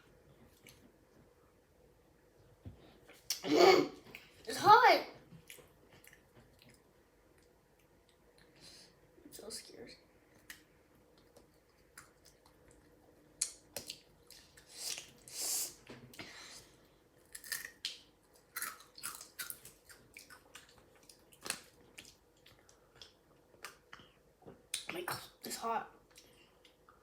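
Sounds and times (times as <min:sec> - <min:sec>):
hiss: 0:14.7 - 0:15.8
chewing crunchy chips: 0:17.2 - 0:24.0.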